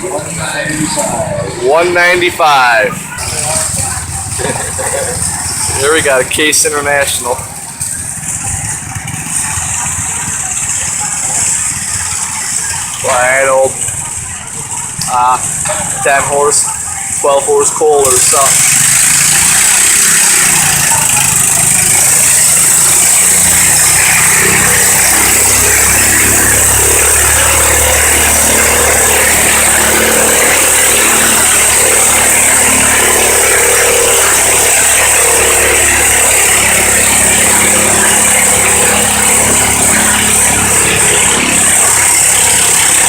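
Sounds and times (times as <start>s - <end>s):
small tractor engine running loud: 0.0s - 43.0s.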